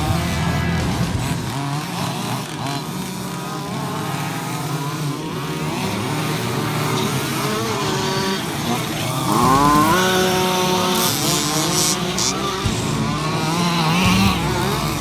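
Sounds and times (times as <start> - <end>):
small two-stroke engines revving: 0.0 - 15.0.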